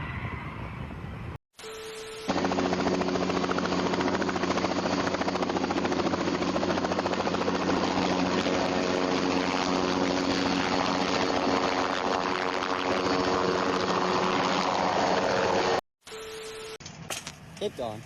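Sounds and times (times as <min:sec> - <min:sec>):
engine running: 0:02.1 - 0:15.8.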